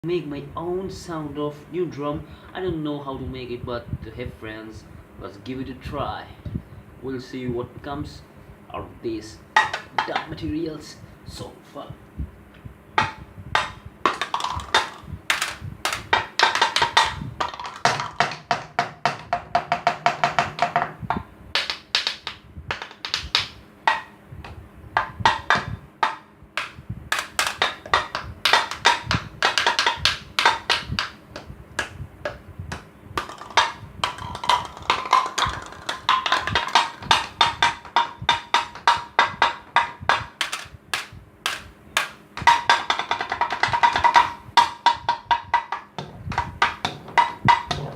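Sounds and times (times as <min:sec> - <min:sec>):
improvised drum strikes: 0:09.5 - 0:10.6, 0:13.0 - 0:47.9.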